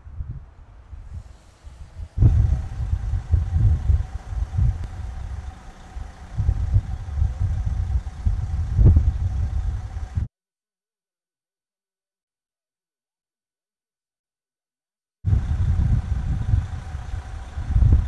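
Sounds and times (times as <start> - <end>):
engine running with low rumble: 0.0 - 10.3, 15.3 - 18.0.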